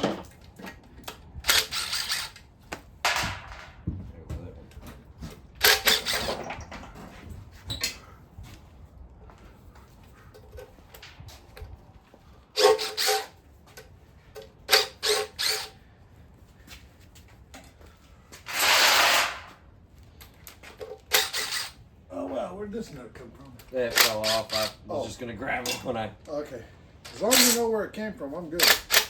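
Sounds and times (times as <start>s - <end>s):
wrenches clanking against metal: 0.0s - 2.5s, 4.8s - 8.0s, 12.6s - 13.4s, 14.4s - 15.8s, 18.5s - 19.5s, 20.2s - 21.8s, 23.6s - 24.8s, 25.5s - 26.1s, 27.0s - 27.8s, 28.4s - 29.0s
harsh metallic rasp: 12.6s - 13.4s, 18.5s - 19.6s.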